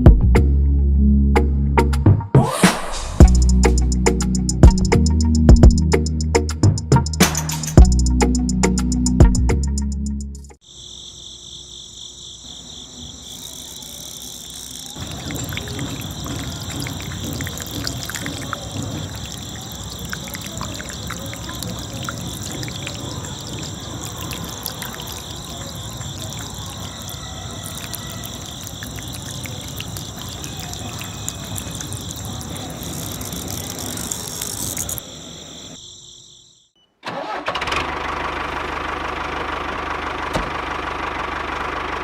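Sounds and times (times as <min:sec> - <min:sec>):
engine rumble with high whines: 0:37.4 - 0:42.0.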